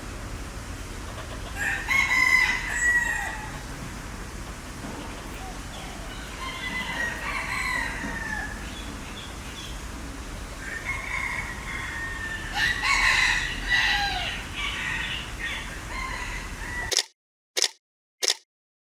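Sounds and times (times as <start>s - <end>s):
fowl crowing: 1.0s - 3.7s, 5.0s - 8.9s, 10.5s - 17.0s.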